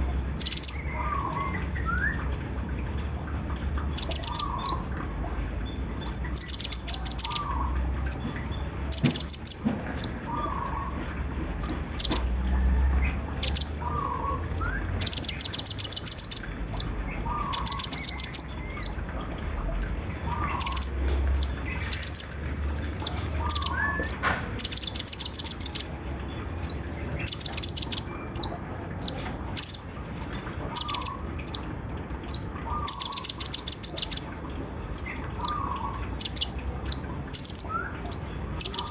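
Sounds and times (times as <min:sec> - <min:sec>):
bird rattling trill: 0:00.4 - 0:01.5, 0:04.0 - 0:04.8, 0:06.0 - 0:08.2, 0:08.9 - 0:10.2, 0:11.6 - 0:12.3, 0:13.4 - 0:13.7, 0:15.0 - 0:16.8, 0:17.5 - 0:19.0, 0:23.5 - 0:25.9, 0:26.6 - 0:31.6, 0:32.3 - 0:34.3.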